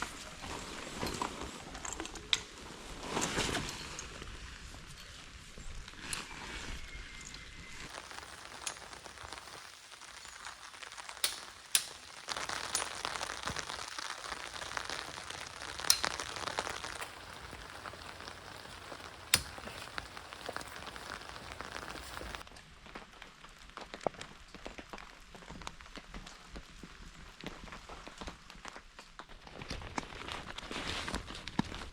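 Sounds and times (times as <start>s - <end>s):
rain hiss: 7.9s - 22.4s
sharp clicks or knocks: 11.2s - 12.5s.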